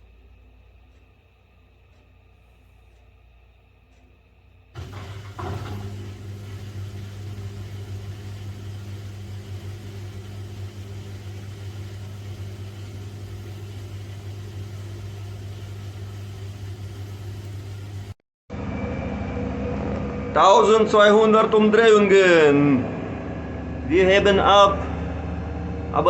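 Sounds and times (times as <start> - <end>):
washing machine spinning: 4.7 - 19.8.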